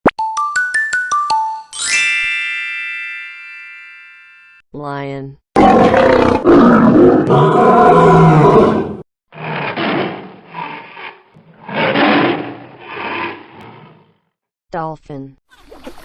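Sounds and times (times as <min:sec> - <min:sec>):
lion roaring: 0:05.6 - 0:14.4.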